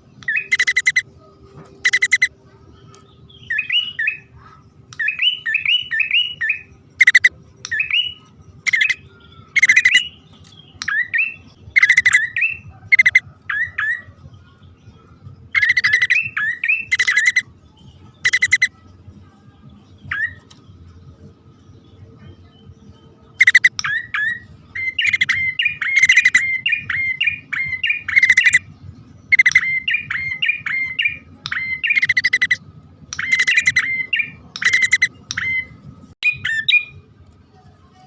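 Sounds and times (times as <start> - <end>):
bird harsh chattering and chirps: 0.2 - 1.1, 1.8 - 14.7, 15.5 - 17.5, 18.2 - 18.7, 23.4 - 37.0.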